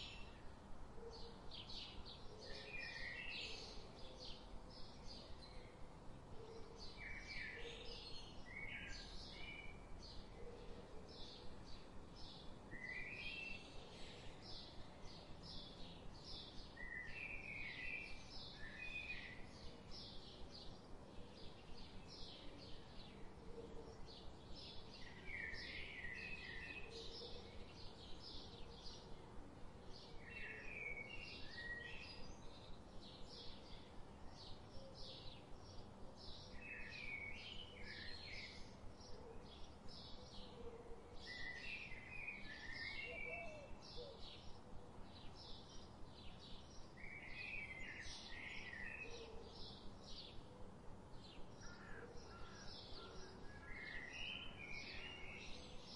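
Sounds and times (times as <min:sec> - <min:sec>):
faint lower bird calls: 0:41.4 - 0:44.5.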